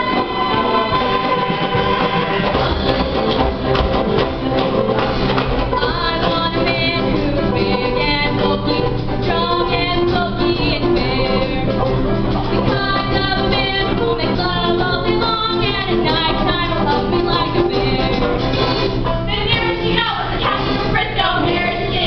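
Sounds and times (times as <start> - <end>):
cast singing together: 0.0 - 4.2, 19.5 - 22.0
instrumental accompaniment: 0.0 - 22.0.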